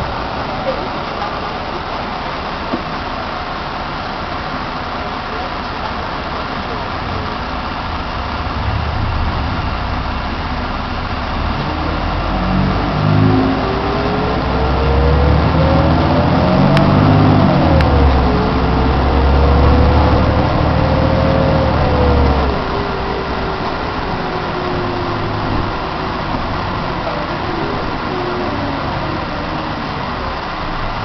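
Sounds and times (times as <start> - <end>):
bus drivetrain whine: 0.0 - 31.0.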